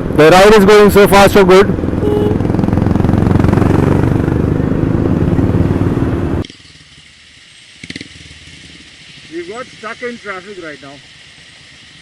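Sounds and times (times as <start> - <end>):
motorcycle engine drone: 0.0 - 6.5.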